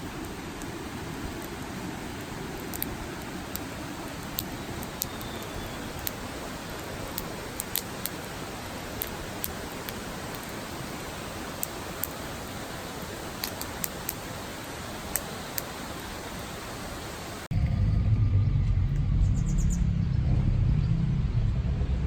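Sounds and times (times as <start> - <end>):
campfire crackling and popping: 0.2 - 10.6, 11.5 - 12.2, 13.3 - 14.2.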